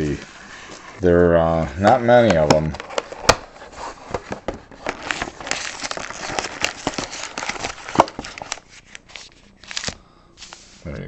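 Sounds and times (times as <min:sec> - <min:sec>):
shrink wrap crinkling and tearing: 0:04.8 - 0:10.6.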